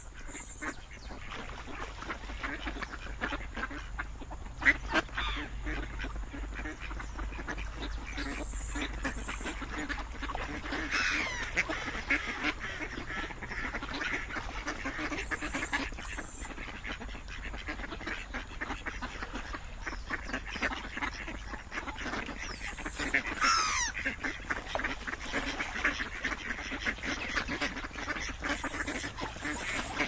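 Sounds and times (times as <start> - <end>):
ducks quacking: 0.0 - 30.0
falling duck call: 10.8 - 11.7, 23.3 - 24.0.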